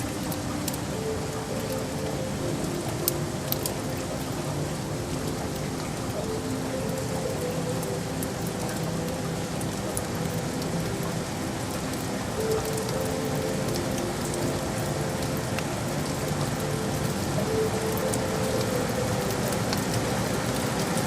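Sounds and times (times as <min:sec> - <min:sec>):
raindrop ticks: 0:00.0 - 0:21.0
steady rain falling: 0:00.0 - 0:21.0.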